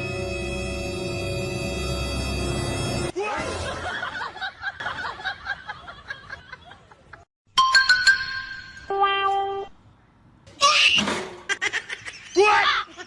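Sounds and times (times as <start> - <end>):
background music: 0.0 - 3.2.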